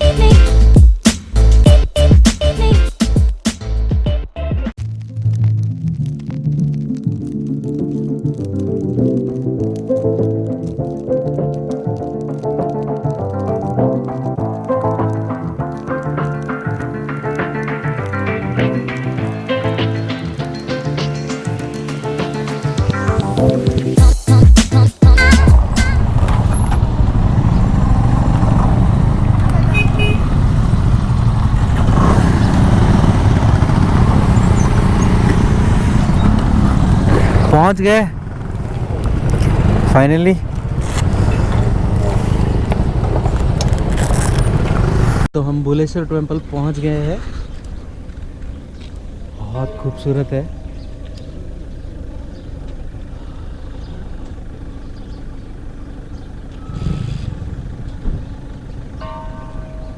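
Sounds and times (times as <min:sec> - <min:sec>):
vehicle engine rumbling: 0:00.0 - 0:45.3, 0:46.0 - 0:59.9
motorcycle engine running: 0:19.0 - 0:45.3.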